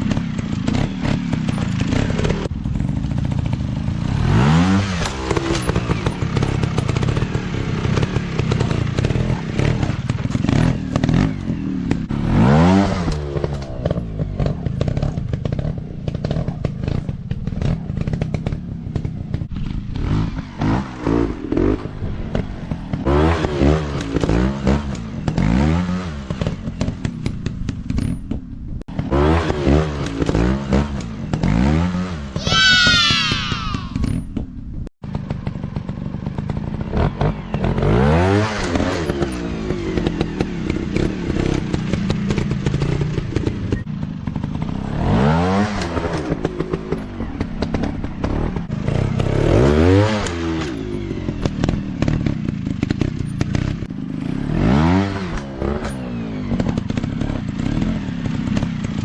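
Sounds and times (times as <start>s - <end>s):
dirt bike engines revving: 0.0s - 26.9s, 28.9s - 34.2s.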